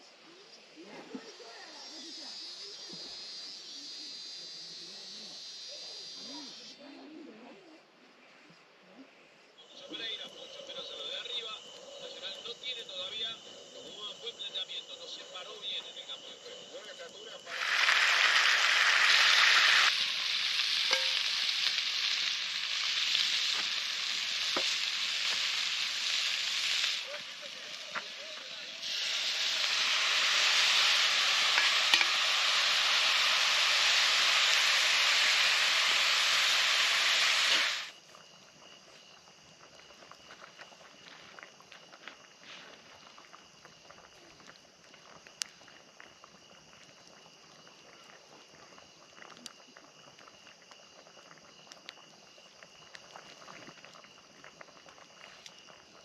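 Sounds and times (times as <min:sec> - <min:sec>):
wood fire crackling and popping: 0:16.4 - 0:38.2, 0:39.5 - 0:56.0
food sizzling in a pan: 0:16.4 - 0:38.4.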